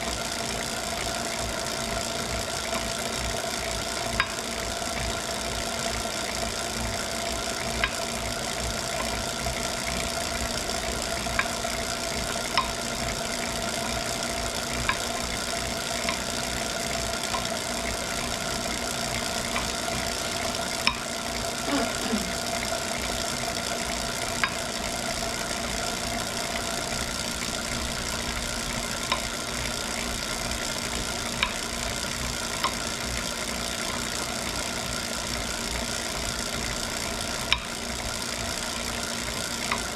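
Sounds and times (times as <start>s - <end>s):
bike trainer whirring: 0.0s - 39.9s.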